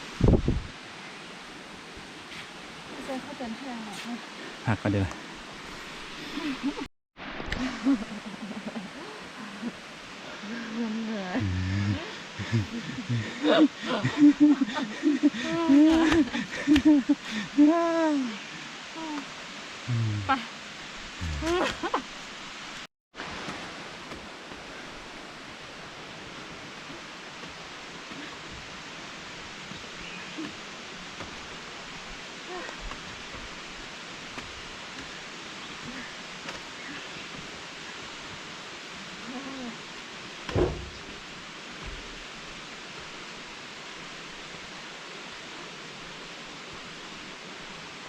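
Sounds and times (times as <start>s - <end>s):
waterfall rushing: 0.8s - 48.0s
sharp knock: 40.5s - 41.0s
soft low thud: 40.5s - 41.1s.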